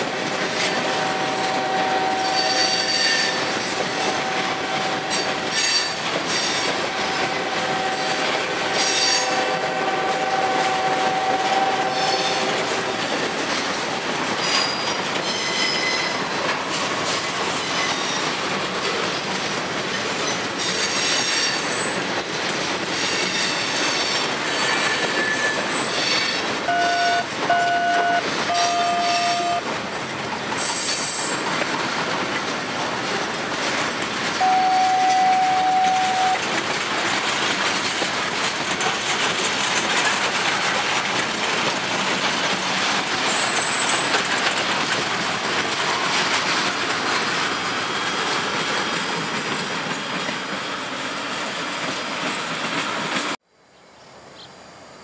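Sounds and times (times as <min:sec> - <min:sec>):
freight train wheels rumbling: 0:00.0 - 0:53.4
train horn blasts: 0:00.7 - 0:06.0, 0:06.9 - 0:13.0, 0:26.7 - 0:29.6, 0:34.4 - 0:36.4
wheel flange squeal: 0:02.0 - 0:06.7, 0:23.0 - 0:29.6.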